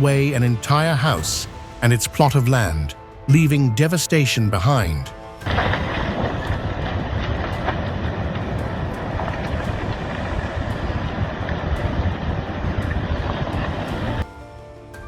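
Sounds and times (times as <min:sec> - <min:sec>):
landslide rumbling roar: 0:05.2 - 0:14.3.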